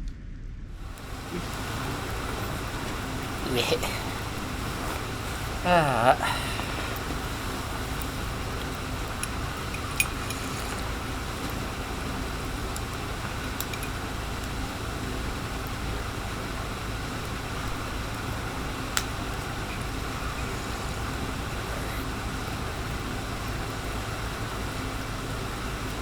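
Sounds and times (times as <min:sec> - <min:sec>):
low outdoor rumble: 0:00.0 - 0:26.0
sharp clinks: 0:08.0 - 0:11.0.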